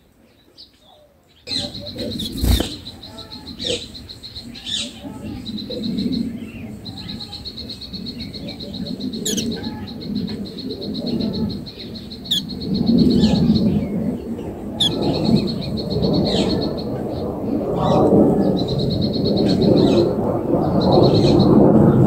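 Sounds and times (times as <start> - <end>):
falling bird chirps: 1.5 - 4.7, 7.0 - 14.0.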